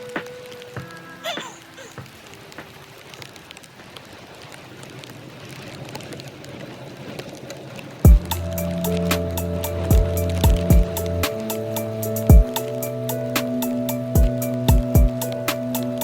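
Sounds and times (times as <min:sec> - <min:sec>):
music: 0:00.0 - 0:01.7, 0:08.1 - 0:16.0
bicycle tyres hissing on wet road: 0:00.0 - 0:16.0.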